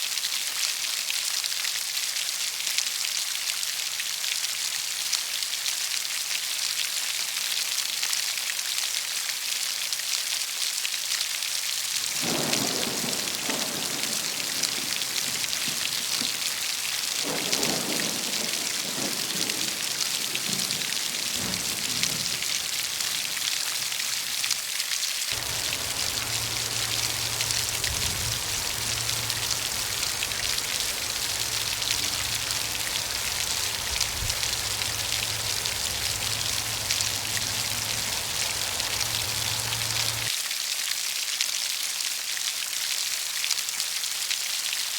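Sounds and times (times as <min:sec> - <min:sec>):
rain on leaves: 0:00.0 - 0:44.9
low thunder rumbling: 0:12.1 - 0:23.4, 0:25.4 - 0:40.3.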